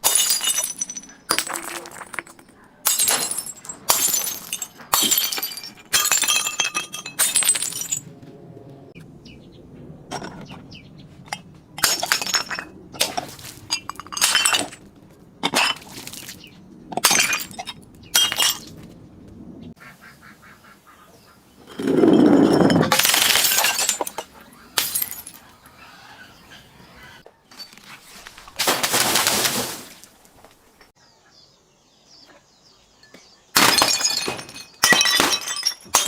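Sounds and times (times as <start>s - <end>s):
glass bottles shattering: 0.0s - 8.0s, 11.8s - 14.8s, 15.4s - 18.7s, 21.7s - 25.7s, 28.6s - 30.0s, 33.6s - 36.0s.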